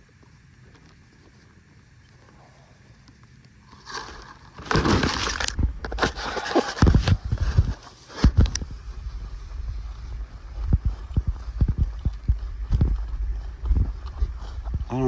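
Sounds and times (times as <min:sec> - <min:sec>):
loud rustling and scraping: 0:03.7 - 0:09.5.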